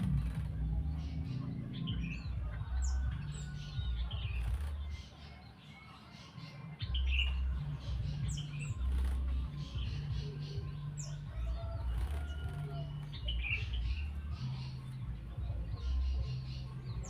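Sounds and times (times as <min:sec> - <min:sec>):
low rumble: 0:00.0 - 0:04.9
high bird chirps and calls: 0:00.0 - 0:17.0.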